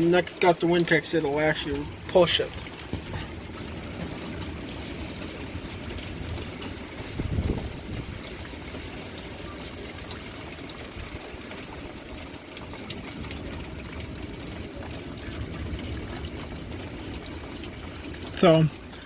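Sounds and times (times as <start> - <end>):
raindrop ticks: 0.0 - 19.0
steady rain: 0.0 - 19.0
wind rumbling on microphone: 1.8 - 18.3.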